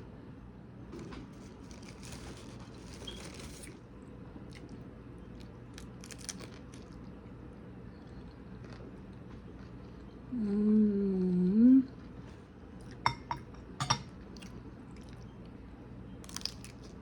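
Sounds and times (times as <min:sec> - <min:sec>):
person chewing crunchy food: 0:04.4 - 0:07.3, 0:07.9 - 0:10.2, 0:16.2 - 0:17.0.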